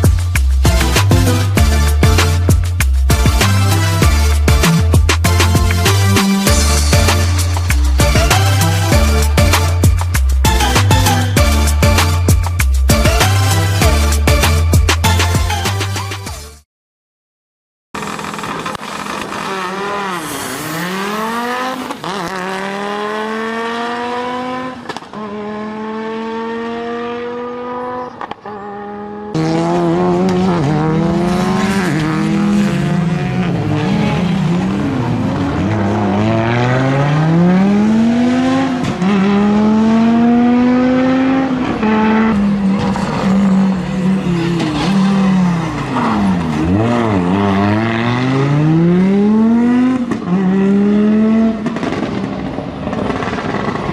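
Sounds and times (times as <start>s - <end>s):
rally car engine revving: 18.0s - 53.9s.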